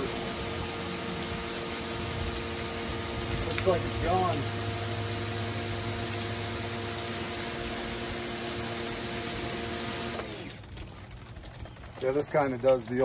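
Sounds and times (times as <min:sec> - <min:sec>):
pressure washer motor humming: 0:00.0 - 0:10.8
water spraying from nozzle: 0:00.0 - 0:13.0.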